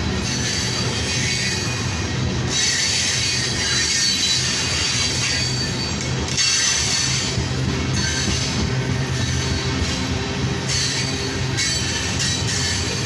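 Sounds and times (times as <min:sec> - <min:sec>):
steel wheels rumbling on rail: 0:00.0 - 0:13.0
high-pitched wheel squeal: 0:02.5 - 0:07.3.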